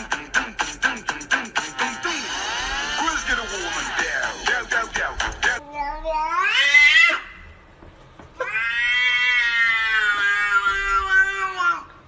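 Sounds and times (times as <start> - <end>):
cats meowing and yowling: 8.4 - 11.9.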